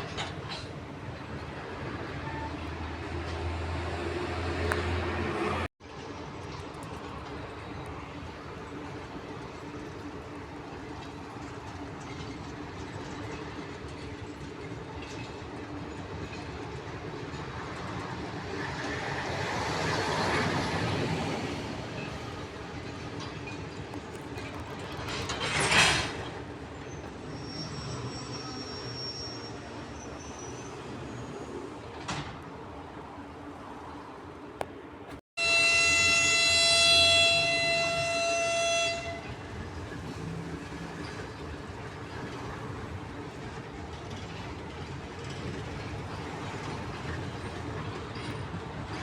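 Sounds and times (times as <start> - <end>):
diesel locomotive engine passing: 0.0 - 49.0
locomotive horn: 35.4 - 40.0.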